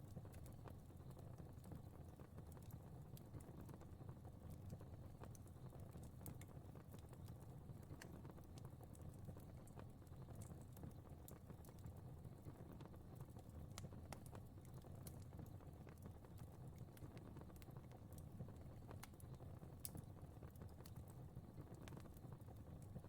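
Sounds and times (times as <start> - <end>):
low rumble of burning: 0.0 - 23.0
fire crackling and popping: 0.1 - 23.0.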